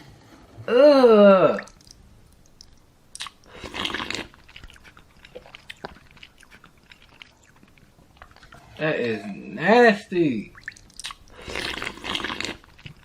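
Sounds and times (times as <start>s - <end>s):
wet mouth clicks: 1.6s - 8.6s, 10.5s - 13.0s
biting and crunching food: 1.6s - 8.7s, 10.6s - 13.0s.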